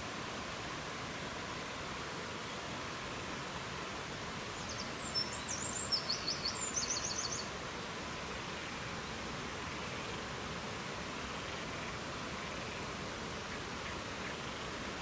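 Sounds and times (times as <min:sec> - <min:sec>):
songbird singing trills: 0:04.6 - 0:07.5.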